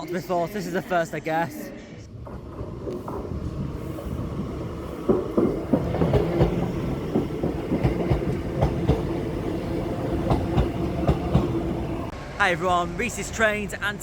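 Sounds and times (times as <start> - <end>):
train hum and rumble: 2.0 - 14.0
train wheels clacking over rail joints: 5.0 - 9.3, 10.2 - 11.6.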